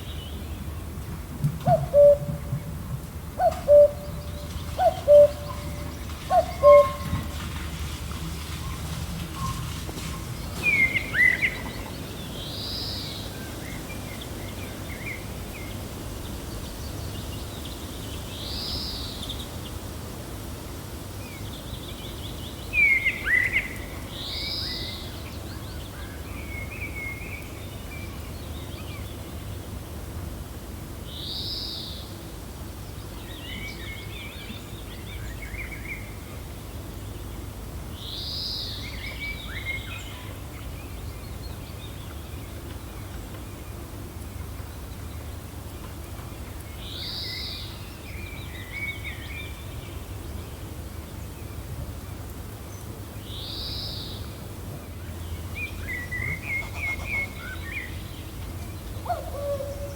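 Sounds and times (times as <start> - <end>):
low rush of wind: 0.0 - 59.9
wild birds calling: 1.5 - 15.3, 55.1 - 59.9.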